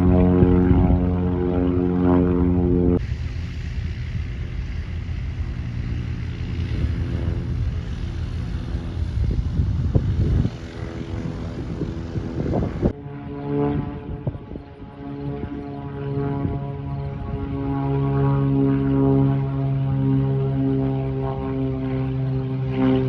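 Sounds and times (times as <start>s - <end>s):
dull rumble: 0.0s - 13.0s
propeller airplane engine droning: 0.0s - 23.0s.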